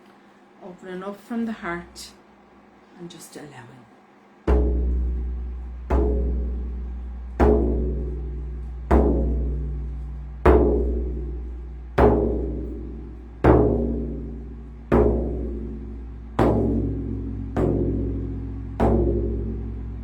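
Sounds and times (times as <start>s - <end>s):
slow deep drum beats: 4.5s - 20.0s.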